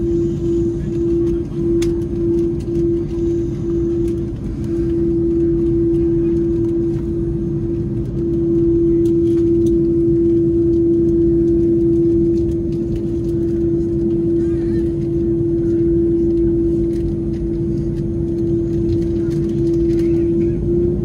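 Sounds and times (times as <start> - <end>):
aircraft cabin rumble: 0.0 - 21.0.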